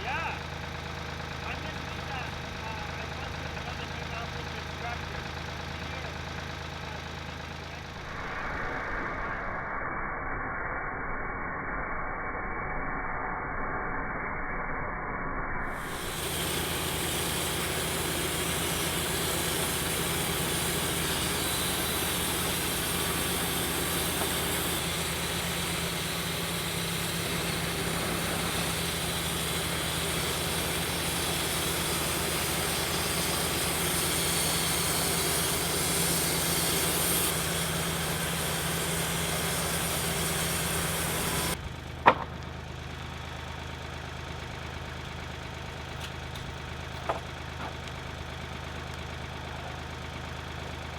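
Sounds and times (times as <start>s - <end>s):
band sawmill engine hum: 0.0s - 9.9s, 15.7s - 50.9s
loud even hiss: 15.8s - 41.6s.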